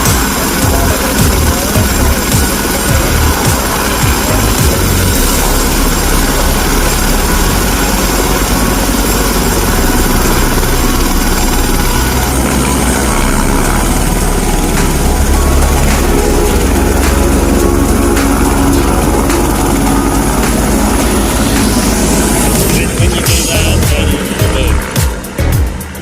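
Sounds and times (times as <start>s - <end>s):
helicopter engine and rotor drone: 0.0s - 26.0s.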